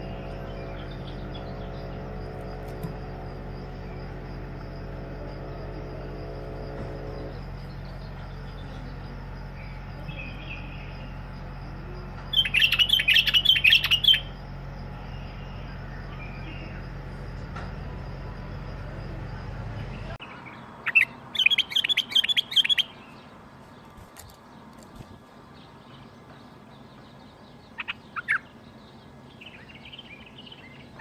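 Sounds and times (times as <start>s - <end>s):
steady low hum: 0.0s - 31.0s
bulbul chirping: 12.3s - 14.4s.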